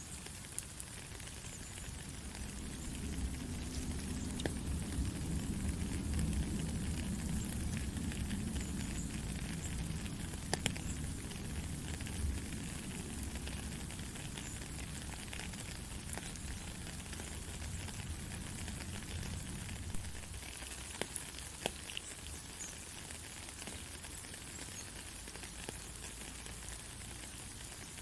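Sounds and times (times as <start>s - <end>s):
heavy rain falling: 0.0s - 28.0s
low rumble: 1.9s - 15.2s.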